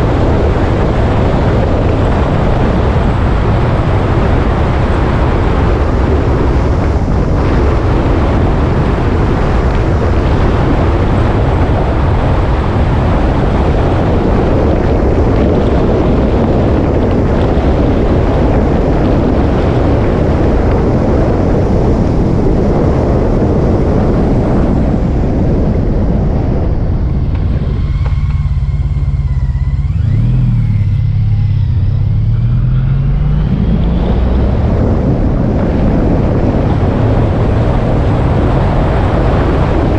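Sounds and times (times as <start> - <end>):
wind and road noise: 0.0 - 39.9
motorcycle engine: 24.7 - 39.9.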